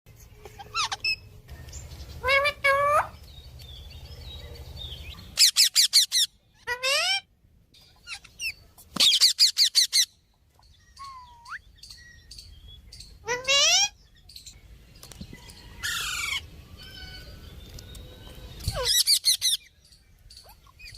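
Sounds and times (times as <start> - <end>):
parakeet screeching: 0.6 - 1.3.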